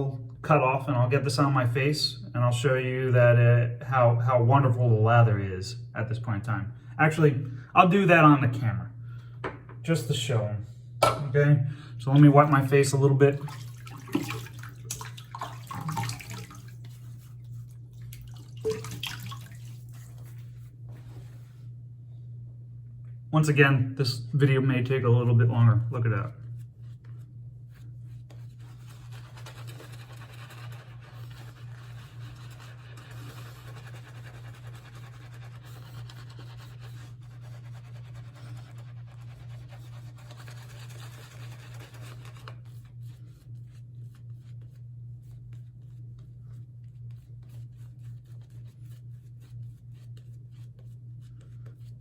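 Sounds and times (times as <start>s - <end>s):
low steady hum: 0.0s - 52.0s
shaving brush scrubbing lather: 12.1s - 20.6s, 28.2s - 51.8s.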